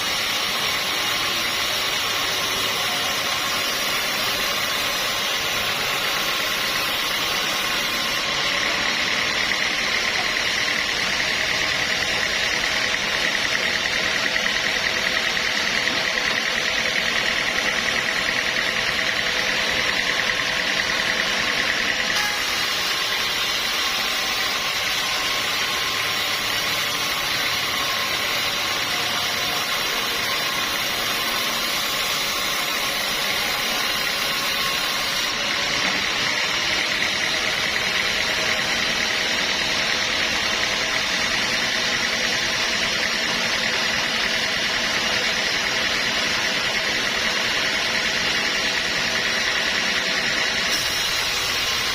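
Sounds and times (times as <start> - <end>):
sawmill machinery whine and hum: 0.0 - 51.9.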